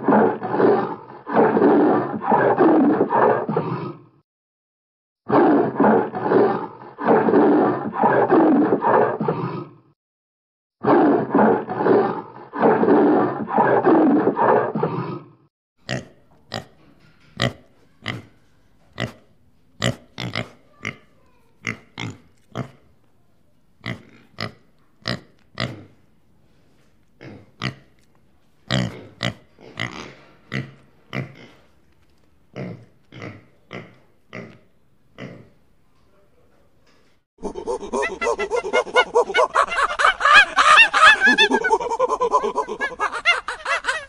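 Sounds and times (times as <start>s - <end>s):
piglets grunting: 19.0s - 22.8s, 37.4s - 44.0s.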